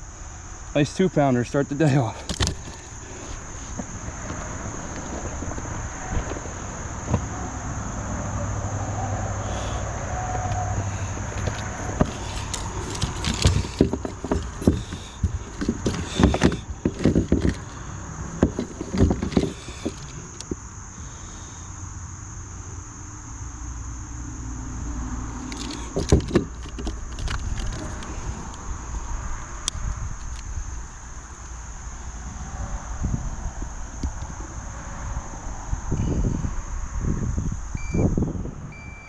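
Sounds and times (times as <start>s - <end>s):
high-pitched insect drone: 0.0s - 39.0s
knocks clicks and rustles: 11.1s - 17.7s.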